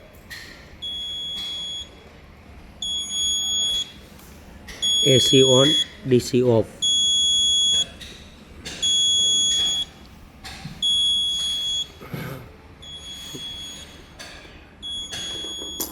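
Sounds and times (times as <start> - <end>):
high-pitched alarm buzzer beeping: 0.8 - 1.9, 2.8 - 4.0, 4.8 - 5.9, 6.8 - 7.9, 8.8 - 9.9, 10.8 - 12.0, 12.8 - 14.0, 14.8 - 15.9.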